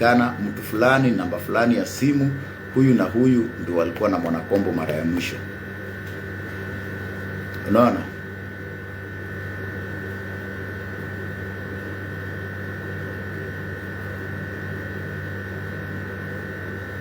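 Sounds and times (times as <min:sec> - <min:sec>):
high-pitched whine: 0:00.0 - 0:08.5
electrical hum: 0:00.0 - 0:17.0.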